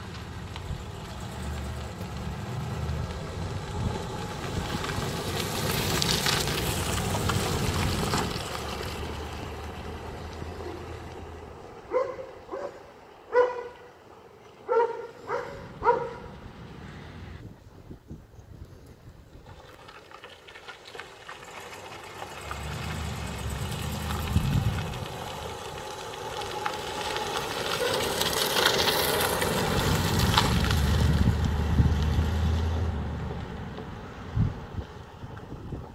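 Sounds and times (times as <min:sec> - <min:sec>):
car driving past: 0:00.1 - 0:12.5, 0:20.9 - 0:35.3.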